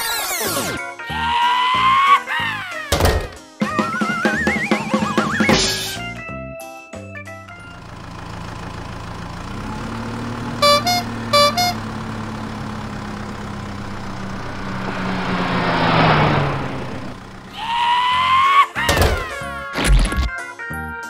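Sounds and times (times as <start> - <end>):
truck engine running: 7.5 - 17.8
two-note horn honks: 10.6 - 12.0, 13.6 - 17.5
rush of noise: 13.7 - 17.8.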